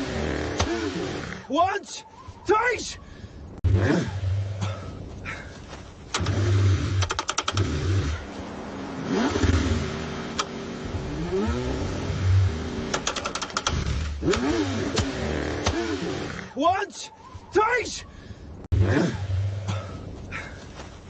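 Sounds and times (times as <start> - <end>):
starter motor chugging: 6.1 - 8.2
car engine cranking: 6.1 - 8.4, 9.0 - 16.5.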